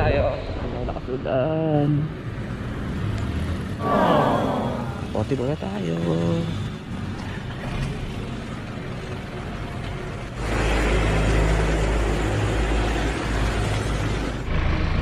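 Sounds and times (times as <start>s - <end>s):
vehicle road noise: 0.0s - 15.0s
rushing noise: 3.8s - 5.4s.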